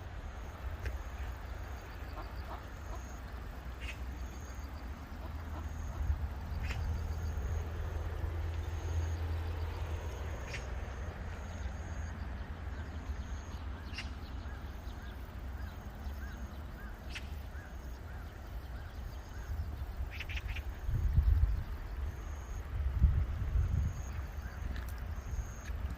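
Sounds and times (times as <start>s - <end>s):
low steady rumble: 0.0s - 25.9s
small birds chirping: 0.8s - 7.8s, 8.4s - 22.6s
ducks quacking: 2.1s - 3.2s, 5.2s - 6.1s.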